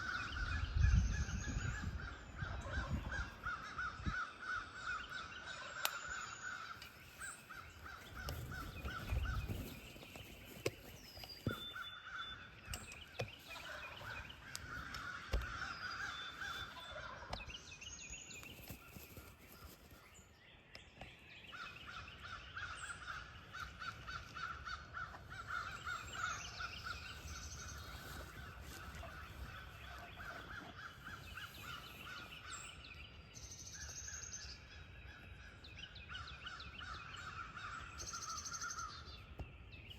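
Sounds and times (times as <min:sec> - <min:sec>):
wind gusts on microphone: 0:00.0 - 0:04.6, 0:07.9 - 0:10.7
songbirds chirping: 0:00.0 - 0:39.9
turkeys gobbling: 0:13.5 - 0:17.4.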